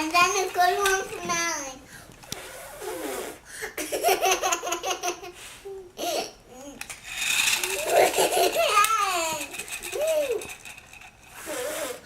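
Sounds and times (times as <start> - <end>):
child laughing: 3.8 - 6.7, 7.7 - 10.5.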